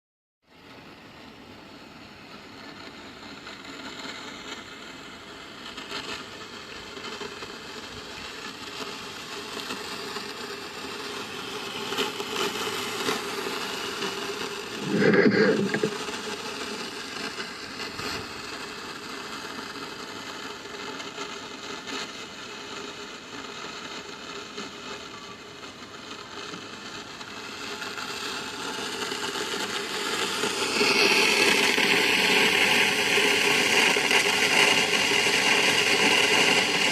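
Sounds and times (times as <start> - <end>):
underground rumbling noise: 11.2 - 18.6
faint scraping and rattling: 11.9 - 17.4.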